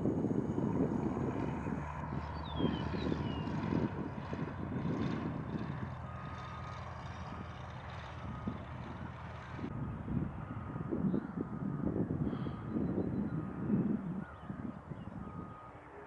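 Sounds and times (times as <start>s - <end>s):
high engine whine: 0.0s - 12.3s
wind buffeting microphone: 0.0s - 15.7s
aircraft engine humming: 0.0s - 16.0s.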